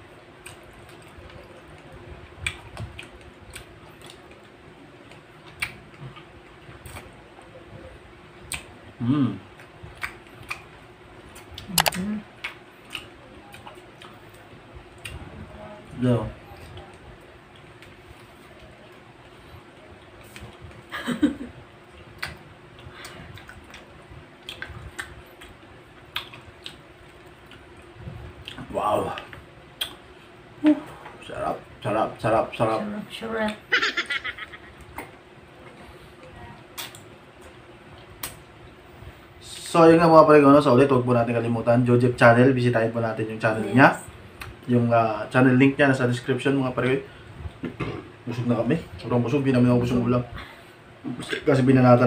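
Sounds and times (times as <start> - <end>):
faint steady hum: 0.0 - 52.0
person chewing grapes: 0.4 - 7.2, 9.4 - 15.2, 21.8 - 30.4
wet mouth smacks chewing: 9.6 - 10.7, 22.2 - 26.8, 36.8 - 37.1.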